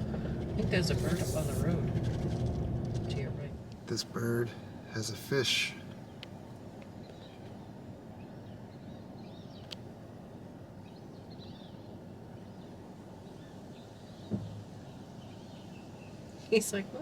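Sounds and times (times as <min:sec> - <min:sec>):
car engine idling: 0:00.0 - 0:06.8
short low thump: 0:14.3 - 0:14.6.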